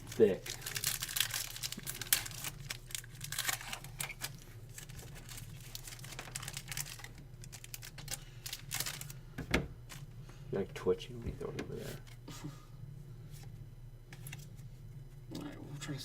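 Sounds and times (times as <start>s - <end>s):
wrapper crinkling and tearing: 0.0s - 9.2s
cards being handled: 14.1s - 14.7s.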